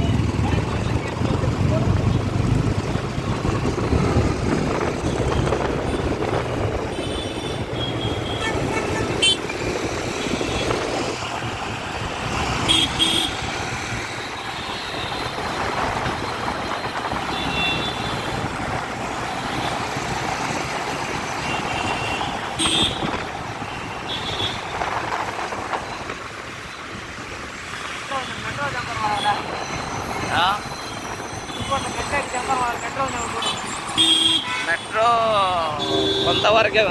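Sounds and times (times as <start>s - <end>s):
dense road traffic: 0.0s - 36.9s
vehicle horn toots: 12.7s - 13.4s, 21.4s - 23.1s, 33.4s - 35.0s, 35.7s - 36.9s.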